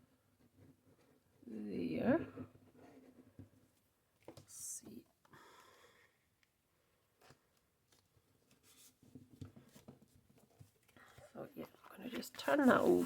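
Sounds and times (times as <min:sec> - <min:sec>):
paper rustling: 0:07.2 - 0:13.0.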